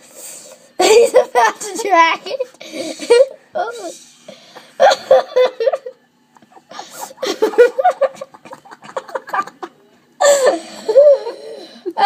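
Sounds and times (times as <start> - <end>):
young people giggling: 0.8 - 3.4, 4.6 - 12.0
loud laughing outburst: 4.8 - 11.3.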